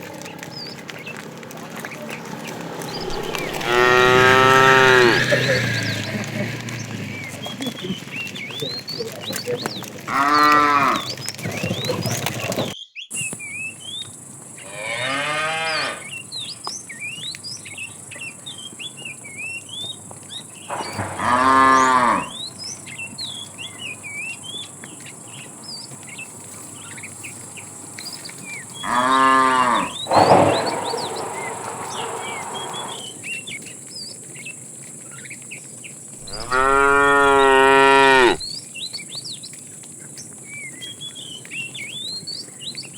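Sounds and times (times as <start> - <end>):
cattle mooing: 2.5 - 6.7, 10.1 - 11.1, 14.7 - 16.1, 20.7 - 22.5, 28.8 - 33.2, 36.2 - 38.4.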